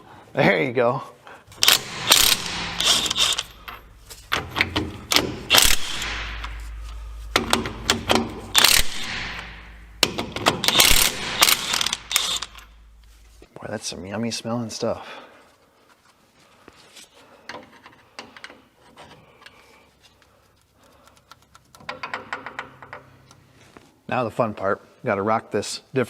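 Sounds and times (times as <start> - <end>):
ratchet wrench clicking: 1.6 - 3.8, 4.4 - 6.7, 7.4 - 12.7.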